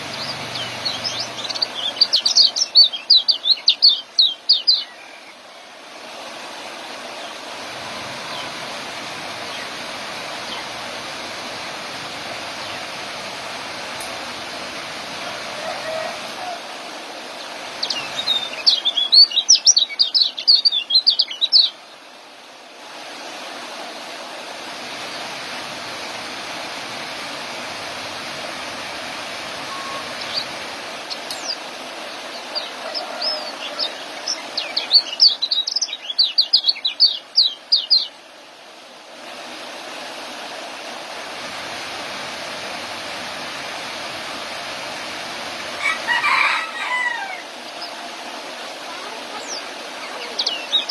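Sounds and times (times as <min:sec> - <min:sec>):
bird chattering song: 0:00.0 - 0:05.4, 0:17.8 - 0:21.8, 0:31.1 - 0:31.6, 0:32.4 - 0:38.2, 0:49.4 - 0:50.9
steady hiss: 0:00.0 - 0:50.9.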